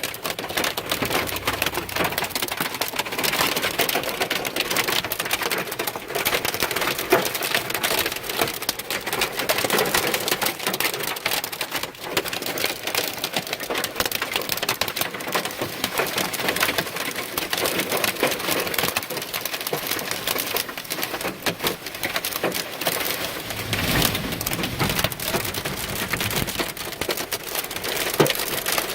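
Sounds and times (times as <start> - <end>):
rain and hail pelting a car: 0.0 - 28.9
low rumble: 0.4 - 3.4, 23.2 - 27.6.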